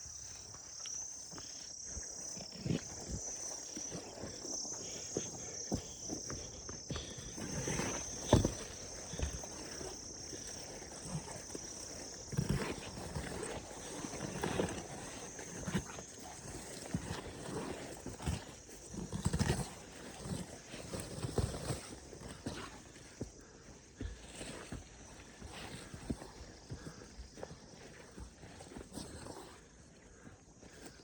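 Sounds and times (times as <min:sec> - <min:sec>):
insects chirring: 0:00.0 - 0:31.0
low thumps and rustles: 0:04.8 - 0:13.6.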